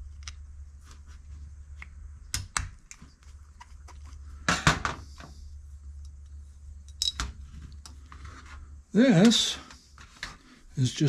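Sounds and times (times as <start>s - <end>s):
metal parts and tools clinking: 6.8s - 8.0s.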